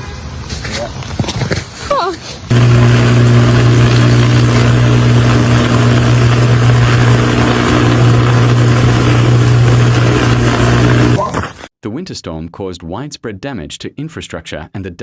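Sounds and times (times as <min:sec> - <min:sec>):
power line arcing buzz: 0:02.5 - 0:11.7.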